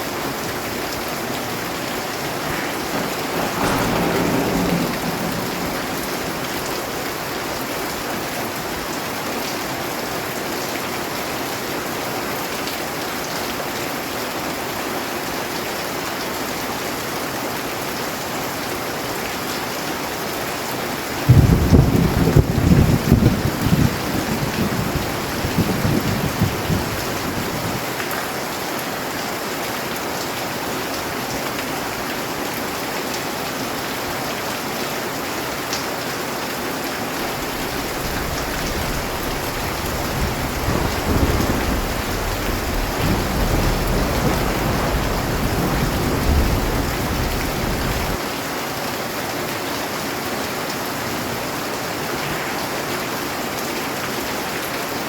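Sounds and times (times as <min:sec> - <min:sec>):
steady rain falling: 0:00.0 - 0:55.0
low rolling thunder: 0:00.2 - 0:09.0, 0:21.2 - 0:28.0, 0:36.9 - 0:48.2.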